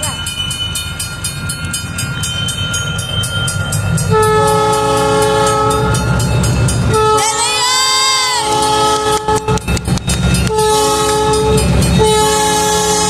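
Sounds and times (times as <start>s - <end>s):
crossing bell ringing: 0.0s - 13.0s
locomotive rumbling: 0.0s - 13.0s
train horn: 4.1s - 6.1s, 6.9s - 9.7s, 10.4s - 13.0s.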